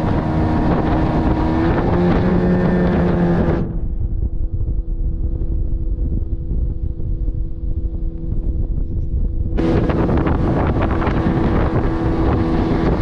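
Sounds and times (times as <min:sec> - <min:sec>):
motorboat engine running: 0:00.0 - 0:13.0
wind rushing over microphone: 0:00.0 - 0:13.0.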